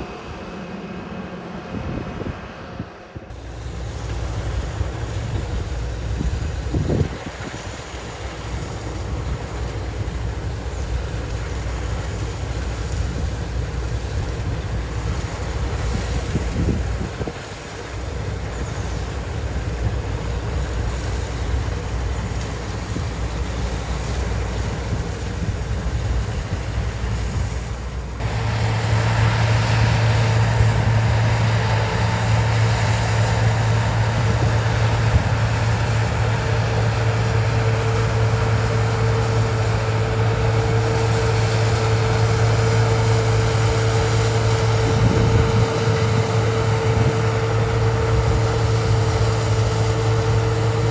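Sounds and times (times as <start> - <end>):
diesel engine running: 0.0 - 50.9
wind buffeting microphone: 1.6 - 50.9
higher steady tone: 28.2 - 42.6.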